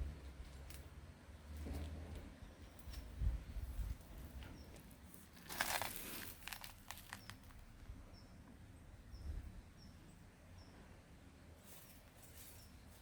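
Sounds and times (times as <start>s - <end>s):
rustling crunching noise: 1.5s - 7.8s
small bird chirping: 7.0s - 10.8s.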